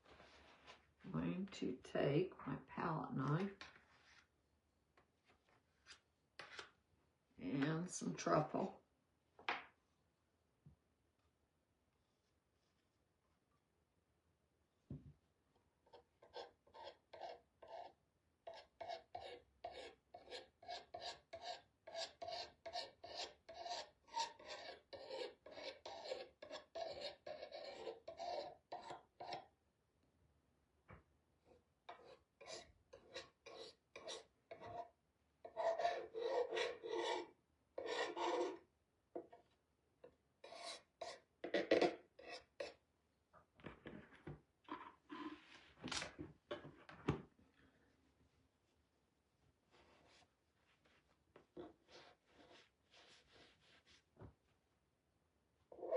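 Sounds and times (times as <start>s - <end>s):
palette knife scraping stencil: 16.0s - 29.4s, 35.5s - 38.6s.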